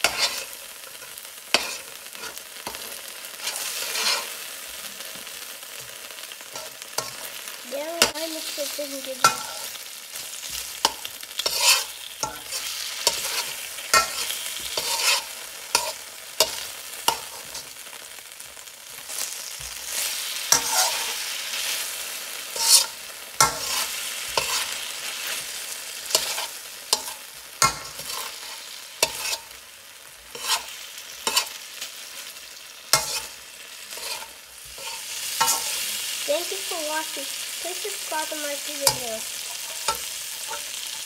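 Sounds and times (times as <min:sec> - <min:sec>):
spatula scraping a pan: 0:00.0 - 0:17.9, 0:18.9 - 0:29.6, 0:30.2 - 0:41.0
food sizzling in a frying pan: 0:00.0 - 0:41.0.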